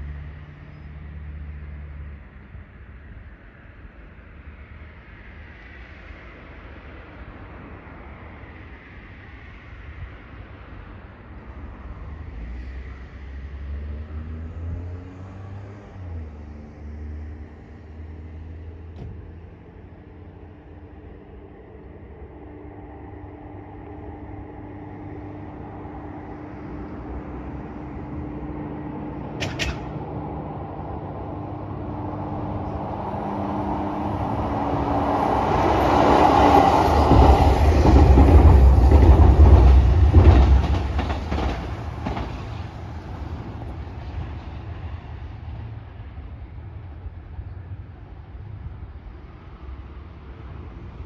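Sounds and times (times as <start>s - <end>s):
railcar rumbling past: 9.7s - 51.0s
wheels clacking over rail joints: 29.3s - 30.1s, 36.6s - 44.7s
sharp click: 29.4s - 29.9s.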